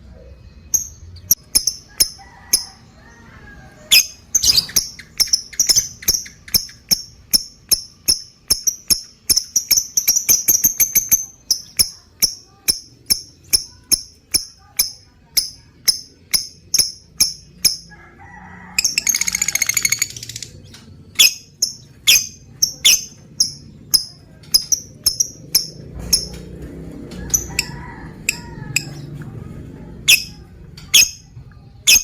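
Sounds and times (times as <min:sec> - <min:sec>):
lovebird chirping: 0:03.8 - 0:17.9, 0:18.8 - 0:26.4, 0:30.0 - 0:31.2
lovebird rattling chatter: 0:18.8 - 0:26.5, 0:27.2 - 0:28.9.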